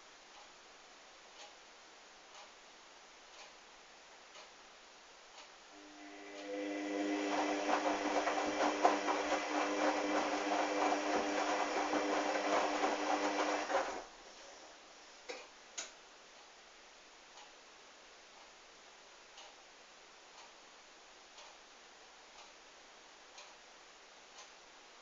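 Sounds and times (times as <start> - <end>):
washing machine motor whine: 5.8 - 14.2.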